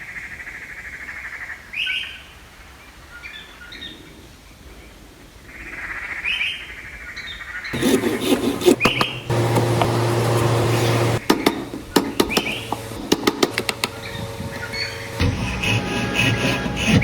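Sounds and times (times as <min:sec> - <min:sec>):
tools knocking on wood: 0:07.8 - 0:10.0, 0:11.1 - 0:15.0
steady machine hum: 0:07.8 - 0:17.0.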